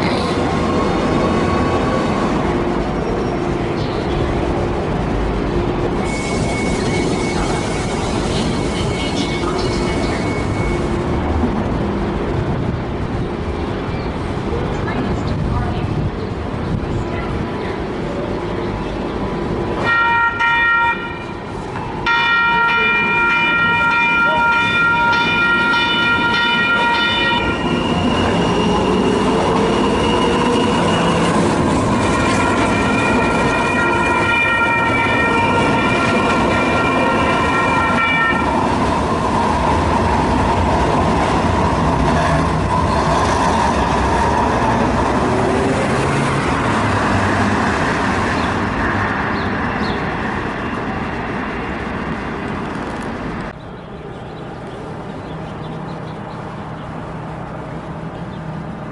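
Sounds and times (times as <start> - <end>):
train wheels rumbling on rail: 0.0 - 58.9
train horn blasts: 19.8 - 27.6, 32.0 - 38.6.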